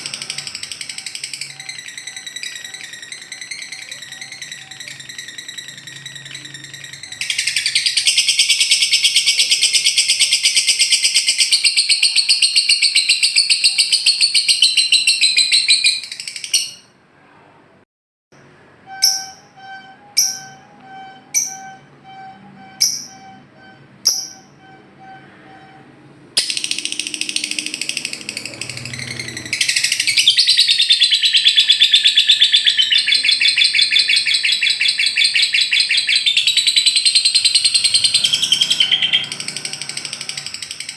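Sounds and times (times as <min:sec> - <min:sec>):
lovebird rapid chatter: 0:26.4 - 0:40.9.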